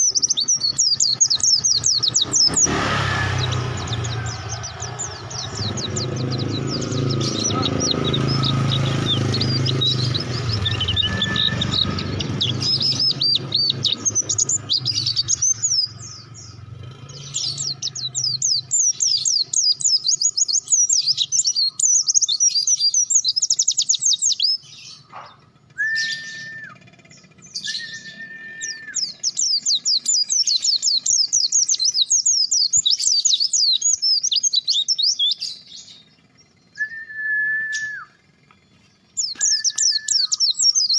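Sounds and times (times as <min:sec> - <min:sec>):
bird twittering song: 0:00.0 - 0:40.9
steady whistle tones: 0:10.4 - 0:11.9, 0:25.8 - 0:26.8, 0:27.6 - 0:29.0, 0:36.8 - 0:38.2, 0:39.4 - 0:40.4.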